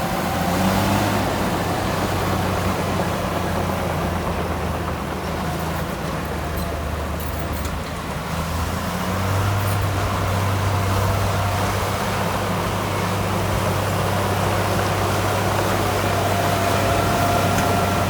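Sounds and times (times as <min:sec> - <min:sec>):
heavy diesel engine humming: 0:00.0 - 0:18.0.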